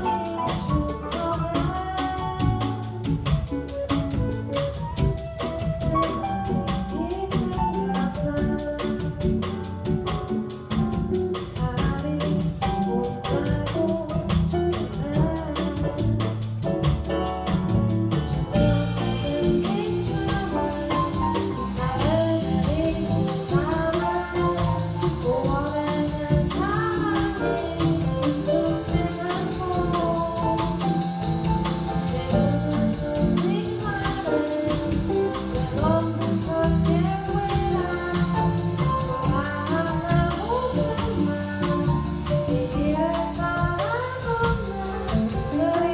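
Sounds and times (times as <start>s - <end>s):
live band playing pop song: 0.0s - 45.9s
person singing: 18.2s - 31.2s.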